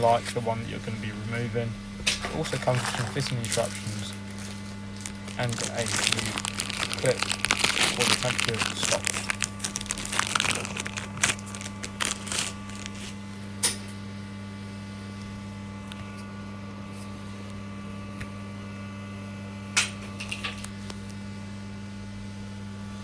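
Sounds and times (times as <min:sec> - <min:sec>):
low mains hum: 0:00.0 - 0:23.0
clicks and rustles of packaging: 0:02.4 - 0:13.2.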